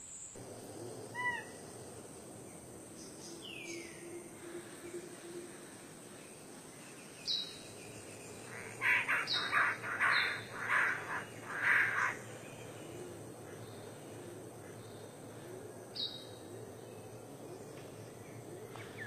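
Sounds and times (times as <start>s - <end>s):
harsh raspy bird calls: 8.4s - 12.2s.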